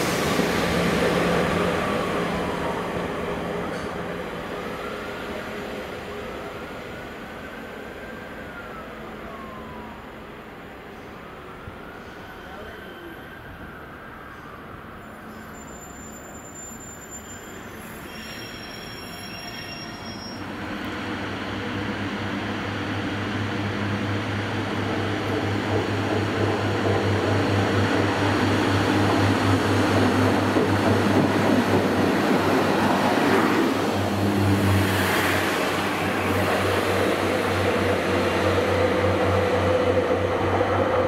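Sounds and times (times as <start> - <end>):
train rumbling: 0.0 - 7.6, 18.0 - 41.0.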